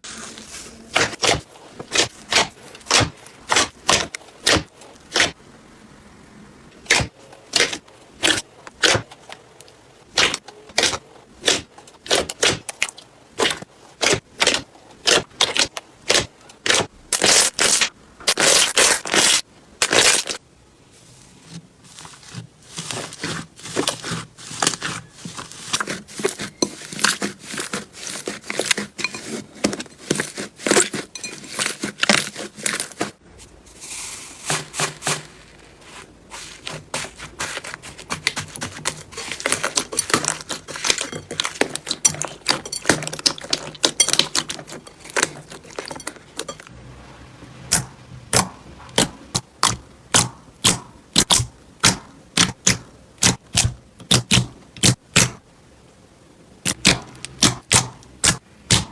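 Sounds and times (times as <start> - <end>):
slime crackling and popping: 10.1 - 20.4, 36.6 - 46.6, 47.7 - 55.4, 56.6 - 58.9.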